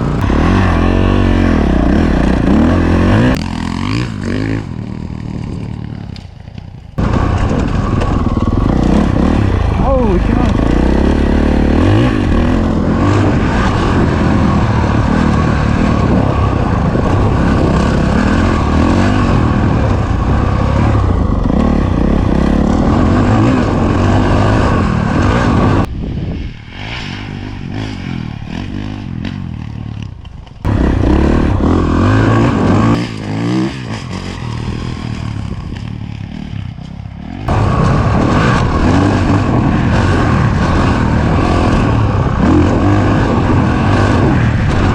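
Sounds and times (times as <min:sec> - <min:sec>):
motocross bike engine revving: 0:00.0 - 0:25.9, 0:27.6 - 0:44.9.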